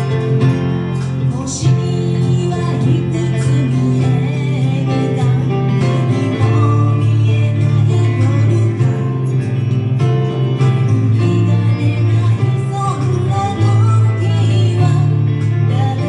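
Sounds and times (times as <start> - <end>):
band playing a song: 0.0 - 16.0
bass: 0.0 - 16.0
guitar: 0.0 - 16.0.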